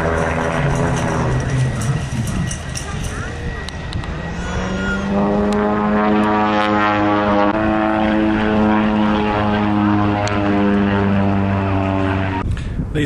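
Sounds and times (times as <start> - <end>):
aircraft engine droning: 0.0 - 12.9.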